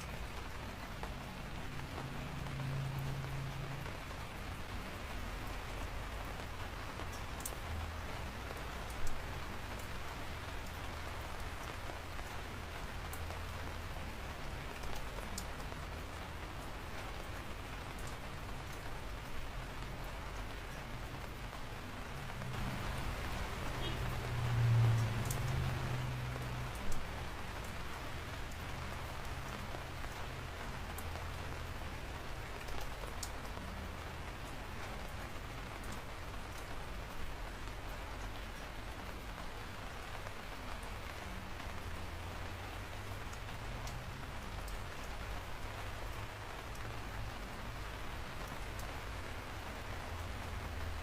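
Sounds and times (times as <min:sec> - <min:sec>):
raindrops ticking on a surface: 0:00.0 - 0:51.0
steady rain falling: 0:00.0 - 0:51.0
sharp drip ticks: 0:22.4 - 0:27.8, 0:30.9 - 0:31.4, 0:32.6 - 0:33.8, 0:43.0 - 0:46.9.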